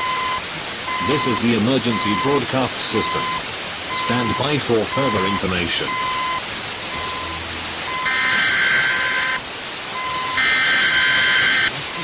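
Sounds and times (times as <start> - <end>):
harsh buzzing alarm blasts: 3.0 - 9.4, 10.0 - 11.7
short electronic alarm beep: 3.0 - 9.4.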